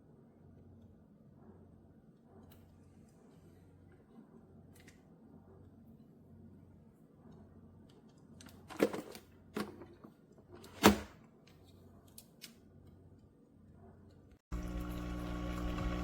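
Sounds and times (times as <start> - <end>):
low hum: 14.5 - 16.0.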